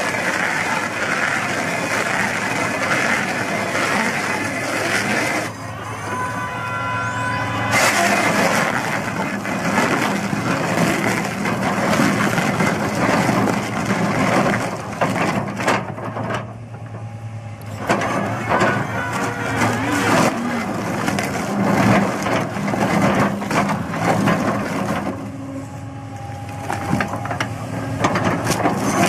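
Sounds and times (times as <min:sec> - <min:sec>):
diesel engine under load: 0:00.0 - 0:29.0
wood cracking and crunching: 0:17.8 - 0:25.3.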